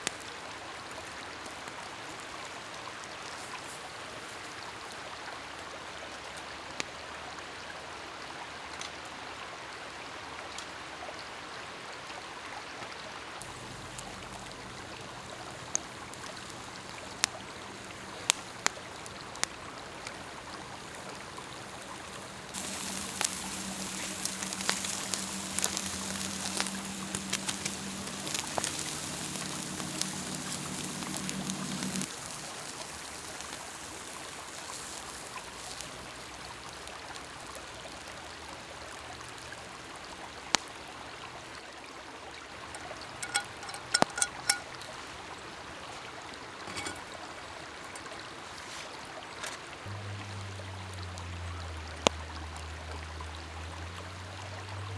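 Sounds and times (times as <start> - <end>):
soft steady hiss: 0.0 - 54.9
campfire crackling and popping: 13.4 - 41.0, 42.6 - 45.2
food grilling: 13.4 - 41.0, 42.5 - 54.2
light metallic clinks: 42.8 - 44.8, 46.7 - 47.2.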